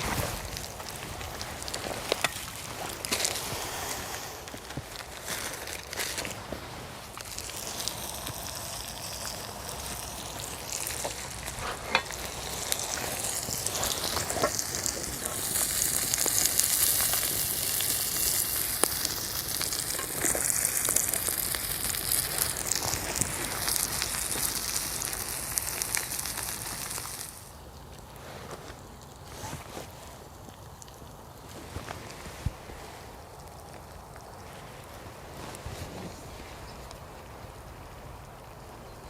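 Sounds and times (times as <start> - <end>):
bacon and eggs sizzling in pan: 0.0 - 29.2.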